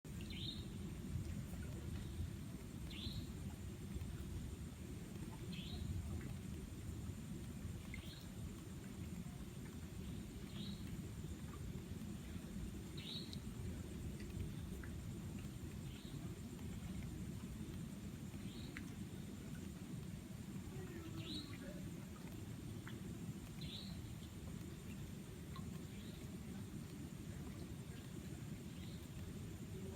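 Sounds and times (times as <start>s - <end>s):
low rumbling background noise: 0.0s - 29.9s
faint sharp ticks: 5.0s - 29.9s.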